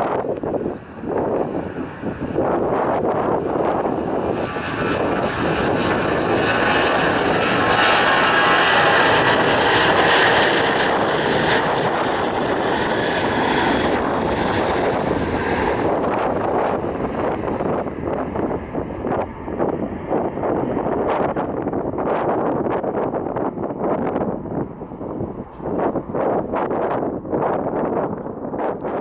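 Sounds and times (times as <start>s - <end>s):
airliner engine roar: 0.0s - 29.0s.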